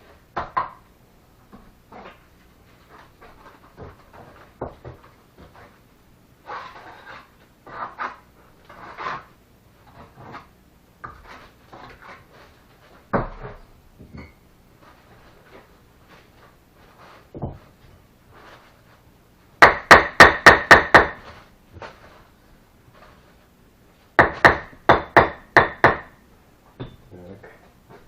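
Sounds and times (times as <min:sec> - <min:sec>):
trowel scraping mortar: 0:06.4 - 0:10.5.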